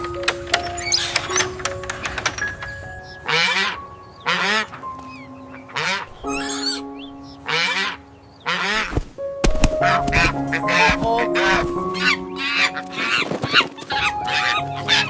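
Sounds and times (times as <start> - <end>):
background music: 0.0 - 15.0
duck quacking: 3.3 - 4.8, 5.6 - 6.8, 7.4 - 9.0, 9.8 - 15.0.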